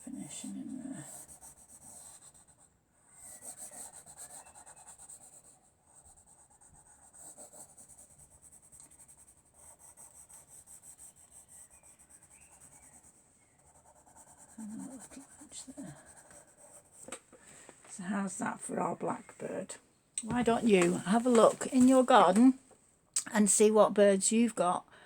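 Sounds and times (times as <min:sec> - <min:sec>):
pencil shading on paper: 0:00.1 - 0:17.1.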